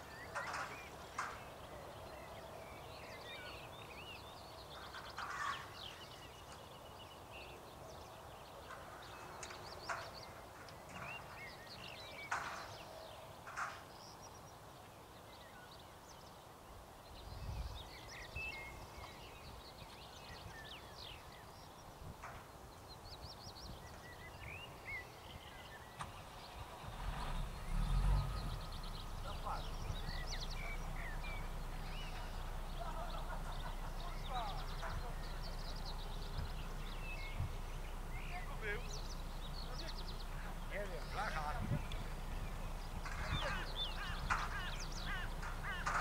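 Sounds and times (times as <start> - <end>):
birds chirping and calling: 0.0 - 46.0
sharp knocks: 43.0 - 46.0.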